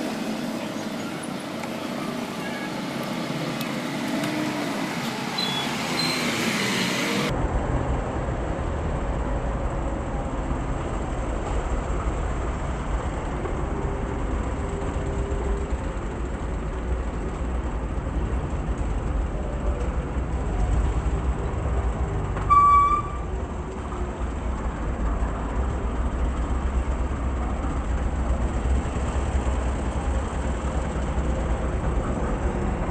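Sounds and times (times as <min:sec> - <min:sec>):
short high-pitched toot: 0:22.5 - 0:23.3.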